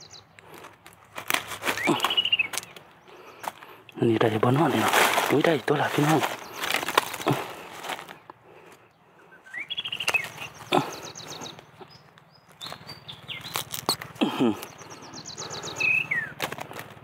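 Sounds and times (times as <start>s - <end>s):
birds trilling and chirping: 0.0s - 17.0s
sharp snaps or rustles: 0.4s - 3.7s, 4.7s - 8.4s, 12.2s - 14.8s, 16.3s - 17.0s.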